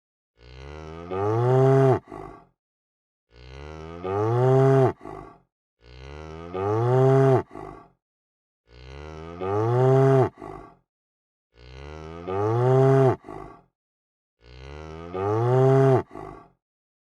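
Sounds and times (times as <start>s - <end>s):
cow mooing: 0.4s - 2.2s, 3.3s - 5.1s, 5.8s - 7.6s, 8.7s - 10.5s, 11.6s - 13.4s, 14.4s - 16.3s.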